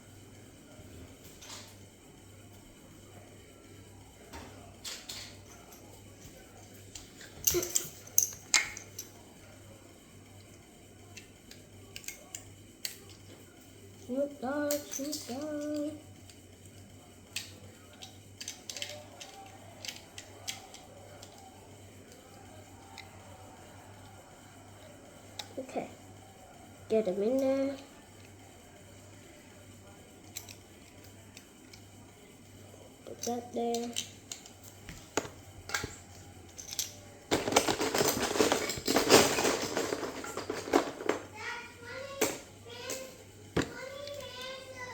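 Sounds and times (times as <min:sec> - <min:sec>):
plastic pieces clicking: 0:17.3 - 0:21.5, 0:33.2 - 0:41.3
dense rattle of pieces: 0:37.3 - 0:41.3.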